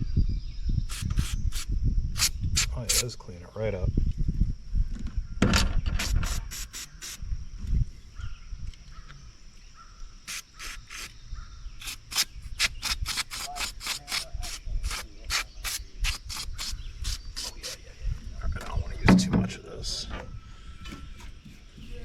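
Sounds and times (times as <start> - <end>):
quick scrubbing strokes: 10.3 - 11.1, 11.8 - 17.9.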